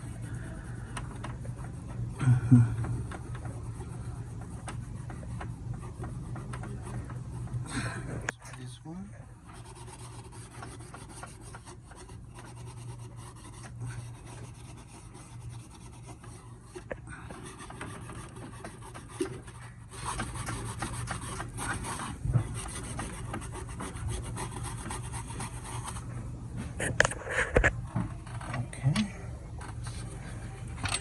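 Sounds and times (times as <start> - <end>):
steady low hum: 0.0 - 31.0
scrubbing a metal surface by hand: 9.4 - 26.2.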